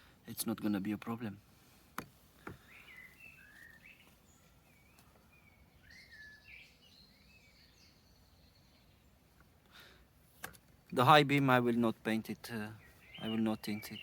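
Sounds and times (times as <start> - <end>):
high thin bird trill: 12.7 - 14.0.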